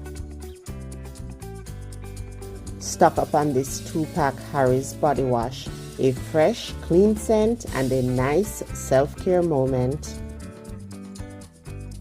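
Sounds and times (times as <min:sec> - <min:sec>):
background music with bass: 0:00.0 - 0:12.0.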